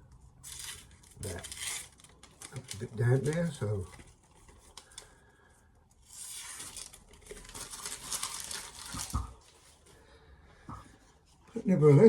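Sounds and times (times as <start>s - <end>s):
paper towel tearing and crumpling: 0.4s - 4.7s, 6.0s - 9.8s.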